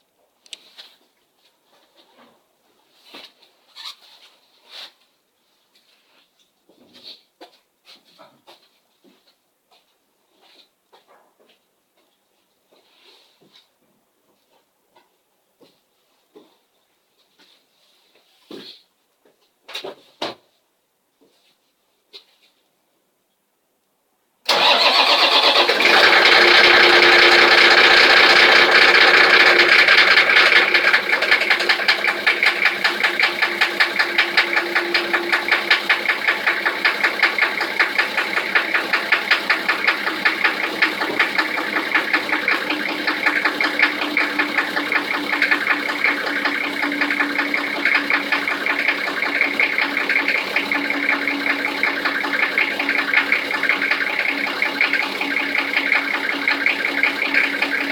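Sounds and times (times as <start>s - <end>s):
diesel engine starting: 24.5s - 57.9s
diesel engine knocking idle: 25.8s - 57.9s.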